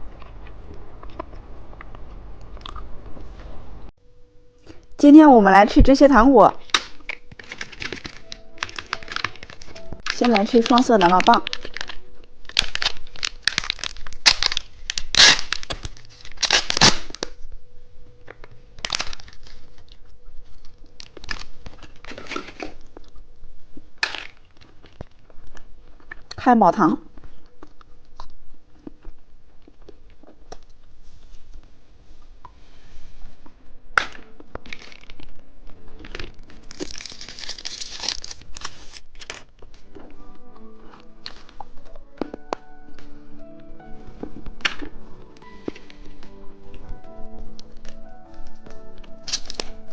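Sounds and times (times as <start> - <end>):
plastic wrapper crinkling: 6.5 - 17.5, 18.2 - 26.4, 34.0 - 40.3, 44.0 - 49.9
music with steady notes: 39.7 - 49.9.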